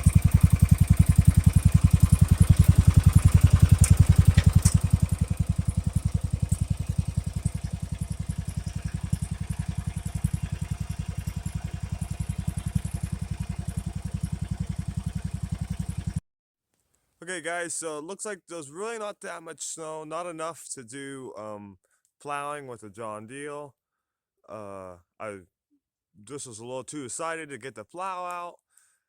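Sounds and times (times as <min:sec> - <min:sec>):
riding lawn mower engine running: 0:00.0 - 0:16.2.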